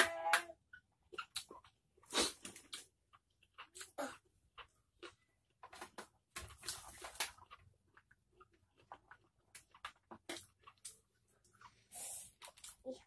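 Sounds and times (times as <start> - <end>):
wet mouth clicks and smacks: 0.7 - 4.0.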